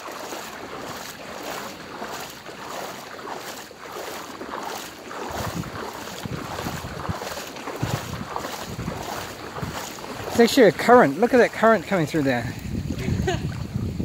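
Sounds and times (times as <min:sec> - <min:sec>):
water sloshing from wading: 0:00.0 - 0:14.0
wind rumbling on microphone: 0:04.2 - 0:14.0.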